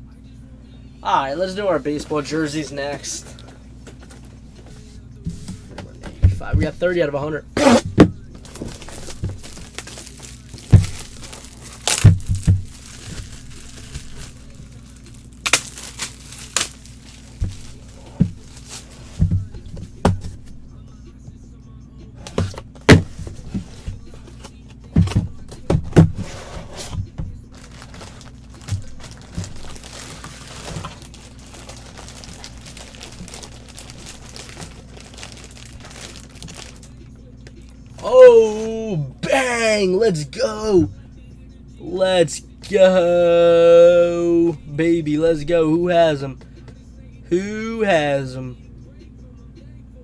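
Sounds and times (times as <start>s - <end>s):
knocks and thumps of handling: 1.9s - 20.7s, 22.2s - 36.9s.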